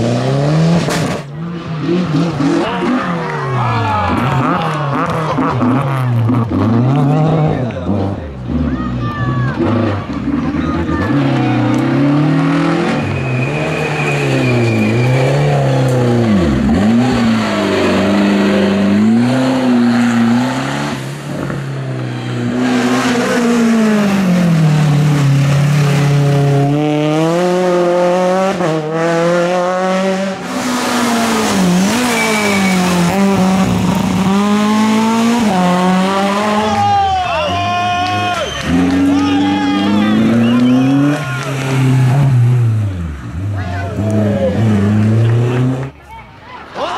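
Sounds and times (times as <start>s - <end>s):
rally car engines revving: 0.0s - 46.1s
tyre squeal: 12.8s - 16.5s, 31.9s - 33.2s, 36.7s - 41.9s.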